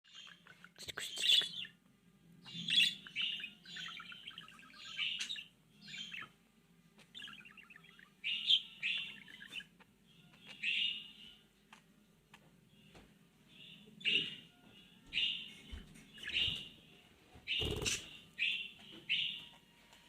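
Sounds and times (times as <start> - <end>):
bird chattering and warbling: 0.1 - 1.8, 2.4 - 6.3, 7.0 - 11.9, 17.5 - 19.3.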